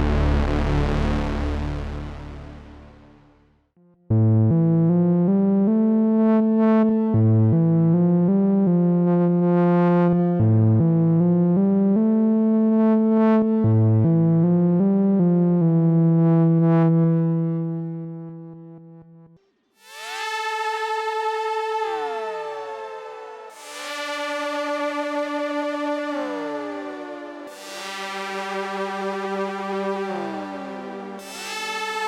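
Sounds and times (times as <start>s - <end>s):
synthesizer melody: 19.8s - 32.0s.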